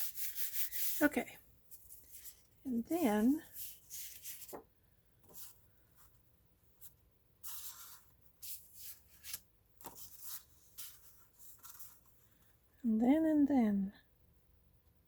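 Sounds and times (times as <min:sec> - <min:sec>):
paper scraping and rustling: 0:03.2 - 0:05.6.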